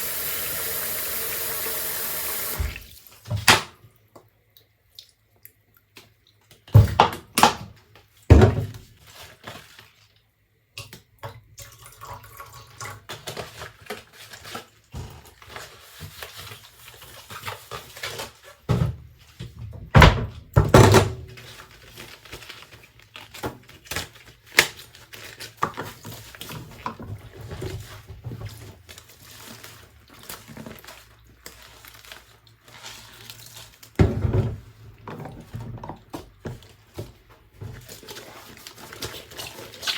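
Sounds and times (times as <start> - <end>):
running water: 0.0 - 3.1.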